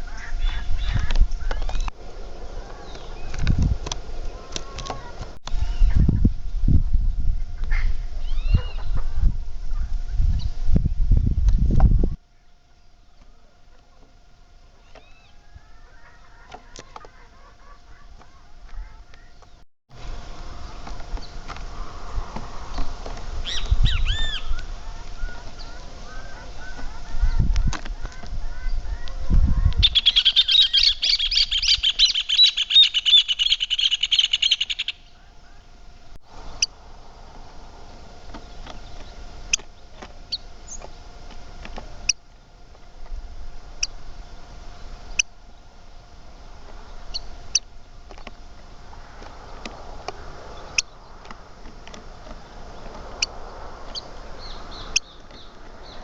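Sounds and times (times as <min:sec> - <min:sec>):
birds chirping and whistling: 0:00.0 - 0:06.1, 0:07.6 - 0:09.0, 0:14.8 - 0:18.4, 0:20.4 - 0:41.0, 0:43.7 - 0:56.0
rapid chattering birdsong: 0:00.0 - 0:06.5, 0:12.3 - 0:56.0.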